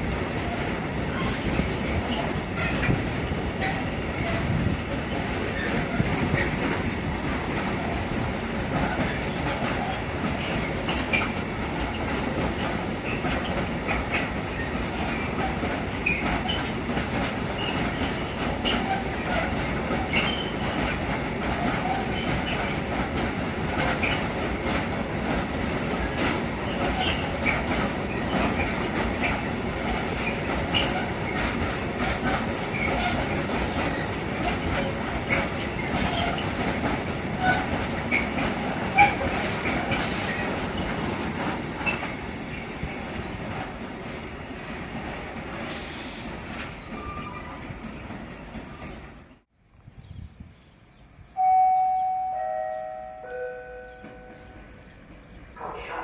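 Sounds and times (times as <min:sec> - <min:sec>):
train wheels clattering over rails: 0:00.0 - 0:49.4
wheel squeals: 0:46.6 - 0:49.1.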